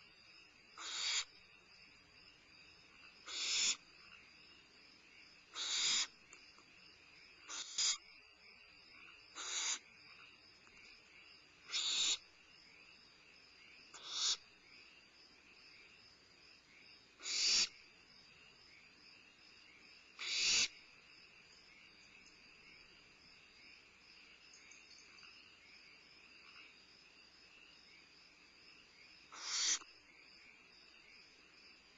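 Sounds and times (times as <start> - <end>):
crickets chirring: 0.0 - 31.9
young owls giving rasping hisses: 0.8 - 1.3, 3.2 - 3.8, 5.5 - 6.2, 7.4 - 8.0, 9.4 - 9.9, 11.7 - 12.2, 14.0 - 14.5, 17.2 - 17.7, 20.2 - 20.7, 29.3 - 29.8.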